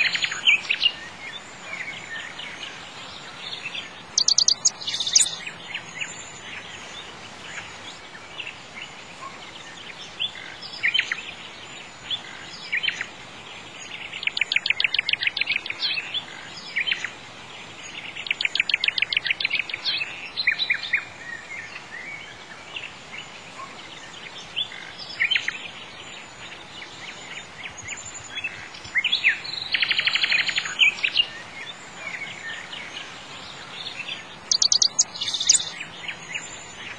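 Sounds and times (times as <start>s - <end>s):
faint background hiss: 0.0s - 36.9s
songbirds chirping: 0.0s - 36.9s
rapid bird trills: 4.1s - 6.6s, 34.0s - 36.9s.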